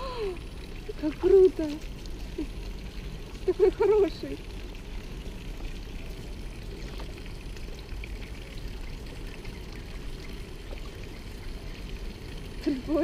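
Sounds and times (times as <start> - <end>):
running water: 0.0 - 13.0.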